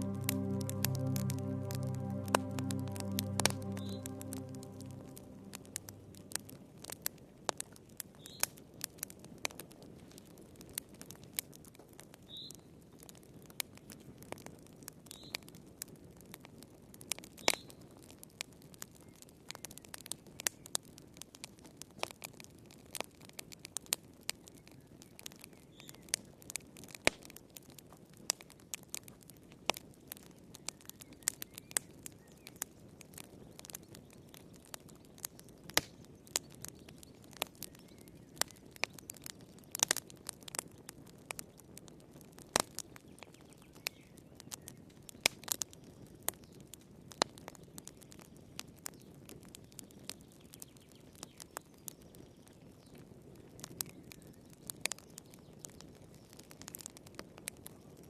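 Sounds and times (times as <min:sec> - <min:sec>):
wood fire crackling and popping: 0:20.2 - 0:58.0.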